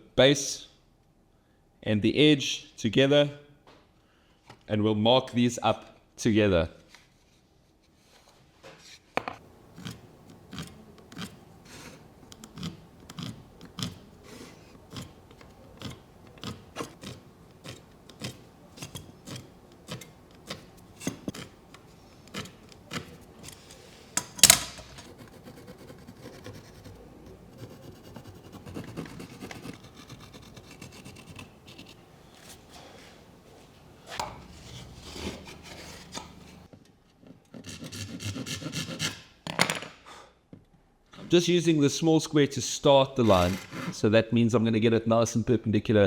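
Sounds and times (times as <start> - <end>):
marking tool scratching wood: 9.7 - 23.9, 24.9 - 32.0, 34.2 - 36.7, 37.5 - 39.3.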